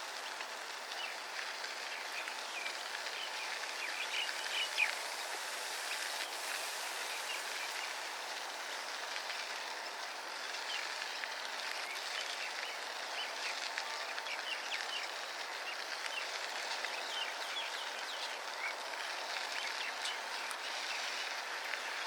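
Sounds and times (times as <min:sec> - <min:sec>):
outdoor noise hiss: 0:00.0 - 0:22.0
bird chirps: 0:01.9 - 0:05.3.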